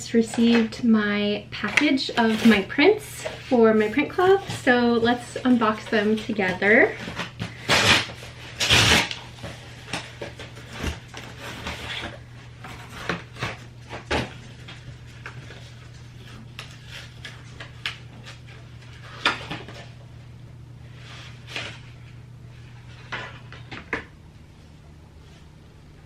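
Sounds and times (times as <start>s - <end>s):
steady low hum: 0.0s - 26.0s
package scraping: 1.6s - 20.0s.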